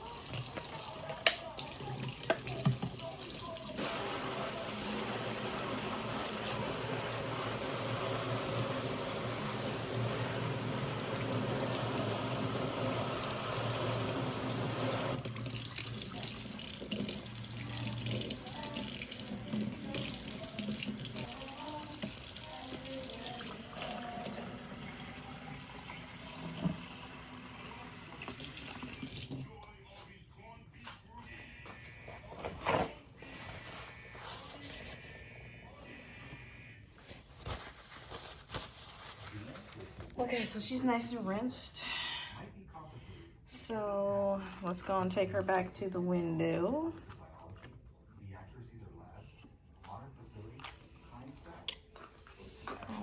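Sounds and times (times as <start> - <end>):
water splashing and dripping: 0.0 - 5.3
tap water running: 0.0 - 29.6.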